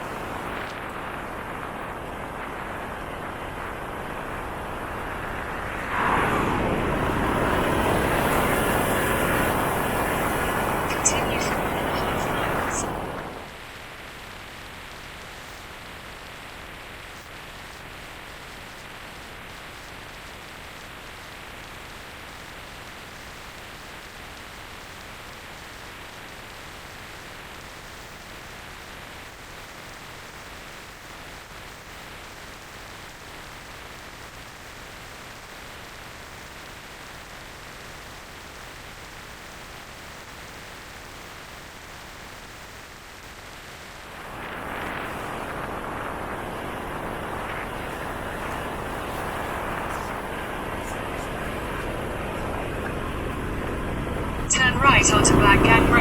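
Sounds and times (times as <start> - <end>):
wind rushing on microphone: 0.0 - 13.5, 44.1 - 56.0.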